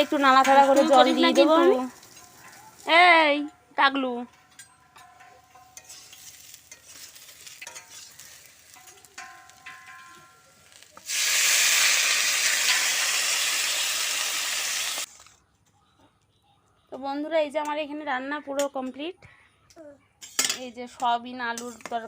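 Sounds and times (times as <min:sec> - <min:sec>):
spatula scraping a pan: 0:05.0 - 0:10.0, 0:21.6 - 0:22.0
loud sizzling hiss: 0:10.7 - 0:15.1.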